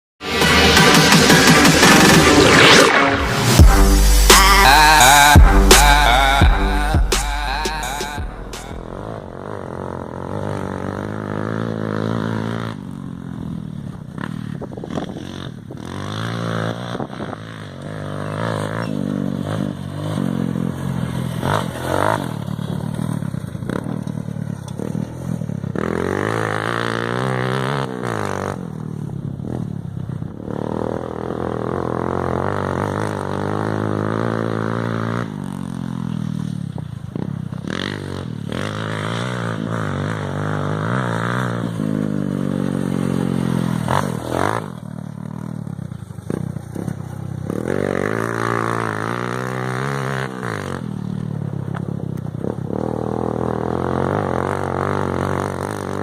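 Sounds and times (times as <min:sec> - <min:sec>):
motorcycle engine revving: 0:00.2 - 0:56.0.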